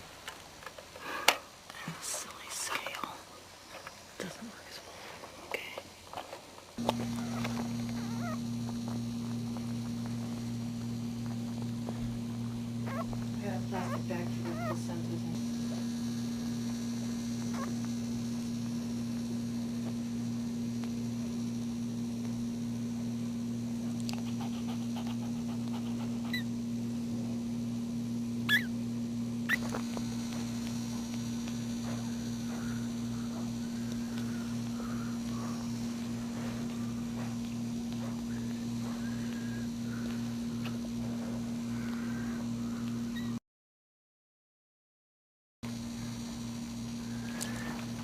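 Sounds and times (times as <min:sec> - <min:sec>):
electrical hum: 0:00.0 - 0:43.4, 0:45.6 - 0:48.0
puppies squeaking and whimpering: 0:07.0 - 0:08.4, 0:12.9 - 0:13.2, 0:13.8 - 0:14.9, 0:28.5 - 0:28.7.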